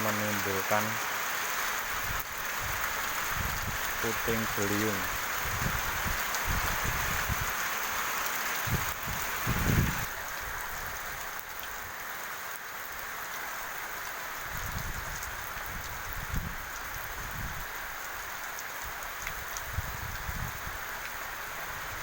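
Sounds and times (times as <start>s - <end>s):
heavy rain falling: 0.0s - 22.0s
wind gusts on microphone: 2.0s - 7.6s, 8.6s - 10.1s, 14.4s - 17.8s, 19.4s - 20.9s.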